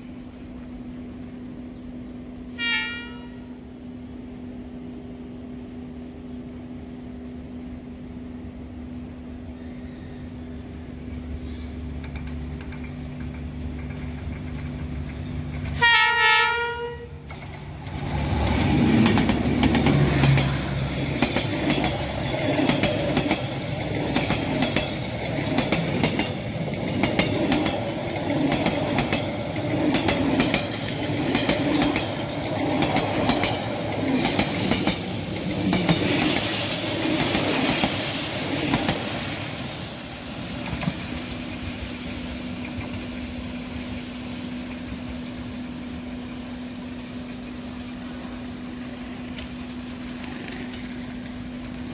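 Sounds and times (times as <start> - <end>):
diesel locomotive running: 0.0 - 51.9
locomotive horn blast: 2.6 - 3.6, 15.8 - 17.2
train wheels clattering over rail joints: 12.0 - 15.8, 17.2 - 39.2.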